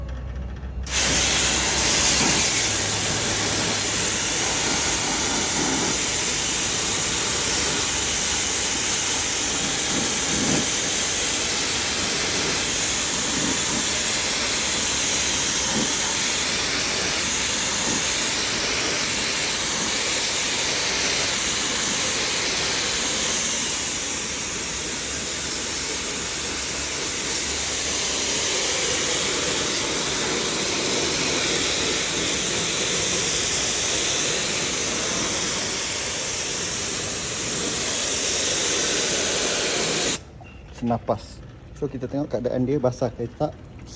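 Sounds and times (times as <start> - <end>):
water jet spraying hiss: 0.9 - 40.3.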